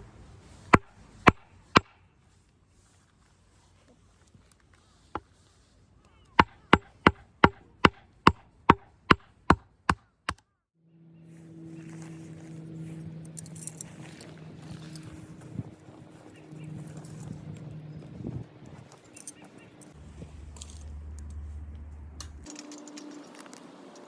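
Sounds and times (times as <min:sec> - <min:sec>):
firewood chopping strikes: 0:06.4 - 0:10.4
steady low hum: 0:10.9 - 0:24.0.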